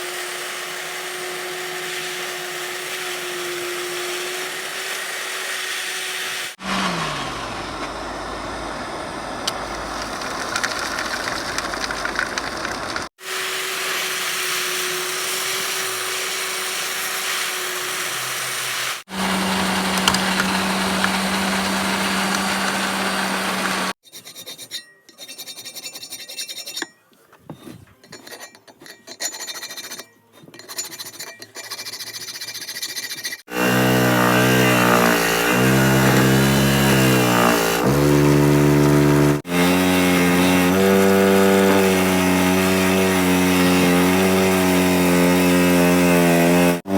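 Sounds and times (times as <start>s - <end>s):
motor hum: 6.6s - 10.8s, 19.1s - 24.0s
scraping and rubbing metal: 17.9s - 33.5s.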